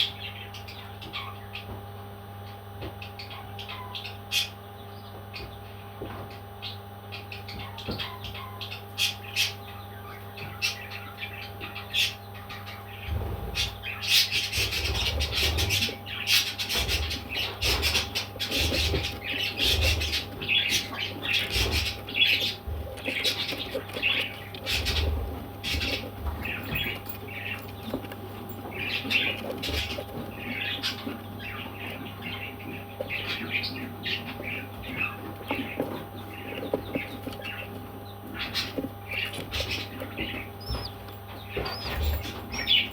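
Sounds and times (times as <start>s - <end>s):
parrot squawking and chirping: 38.4s - 42.9s.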